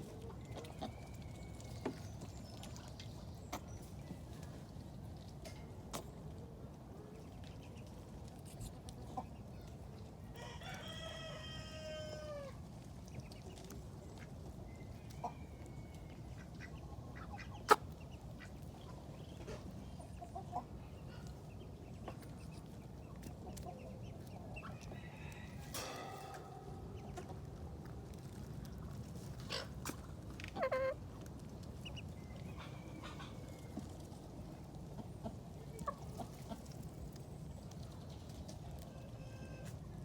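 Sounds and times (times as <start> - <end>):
rooster crowing: 10.4 - 12.6.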